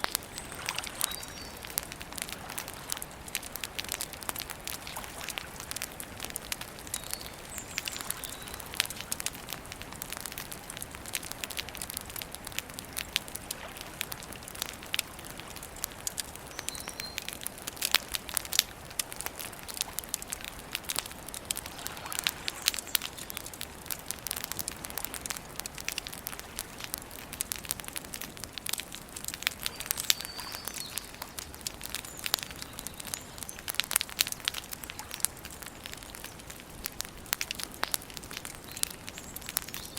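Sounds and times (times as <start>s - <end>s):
faint bird chirping: 0.0s - 1.8s, 6.8s - 8.9s, 29.6s - 33.8s
campfire crackling and popping: 0.0s - 39.9s
soft steady fire hiss: 0.0s - 39.9s.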